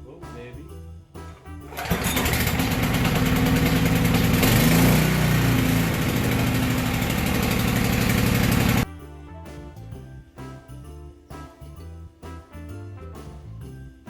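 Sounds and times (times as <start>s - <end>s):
generator engine running: 1.7s - 8.9s.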